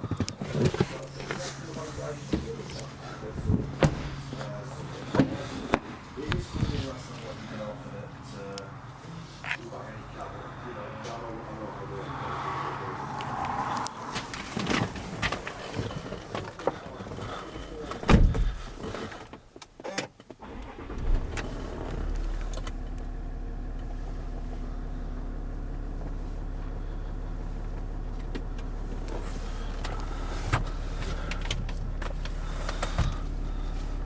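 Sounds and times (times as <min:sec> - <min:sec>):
car engine starting and idling: 0:00.0 - 0:34.0
loud thump: 0:03.4 - 0:04.4, 0:18.1 - 0:18.6.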